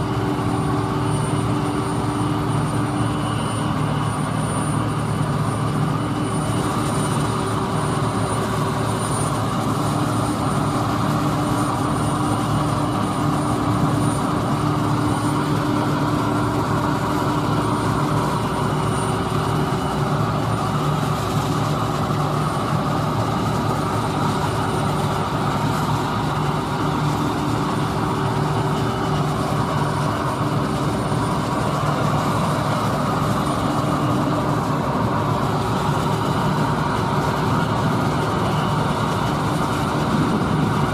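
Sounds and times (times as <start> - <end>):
farm machinery engine drone: 0.0 - 40.9
steady machine whines: 0.0 - 40.9.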